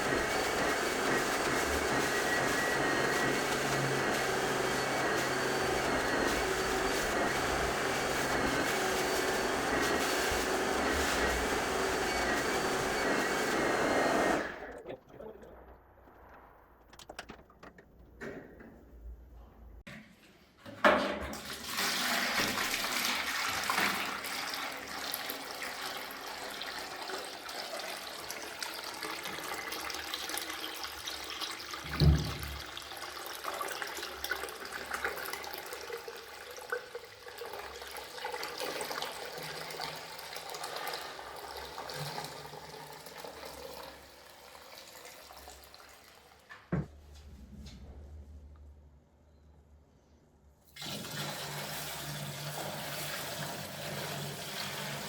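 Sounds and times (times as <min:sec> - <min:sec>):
carpet cleaning machine running: 0:00.0 - 0:14.9.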